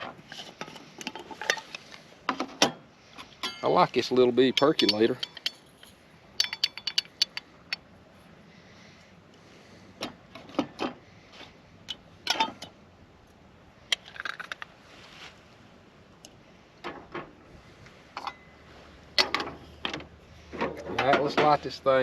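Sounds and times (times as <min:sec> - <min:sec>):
metal cooking gear clinking: 0:03.4 - 0:07.8.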